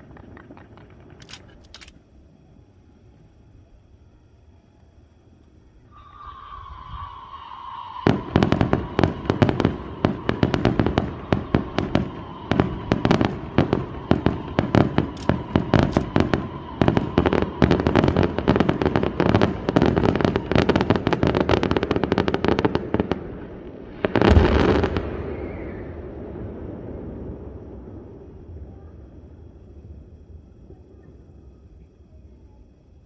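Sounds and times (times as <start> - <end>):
fireworks cracking: 0.0 - 2.2, 4.8 - 33.0
faint steady whistle: 1.2 - 22.4, 24.2 - 33.0
loud firework boom: 6.9 - 21.7, 23.9 - 30.6.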